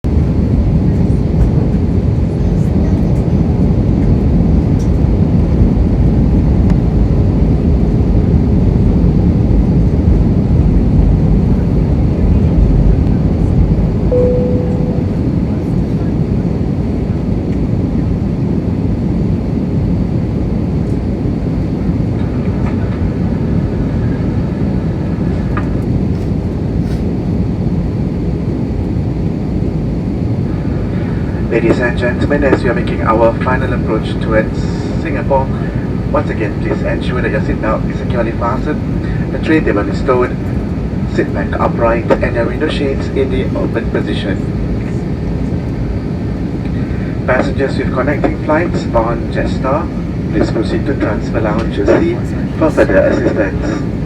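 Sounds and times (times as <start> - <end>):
jet engines droning: 0.1 - 54.0
single tone: 14.1 - 15.9
airplane cabin air rush: 22.2 - 27.4, 29.7 - 44.1, 44.7 - 54.0.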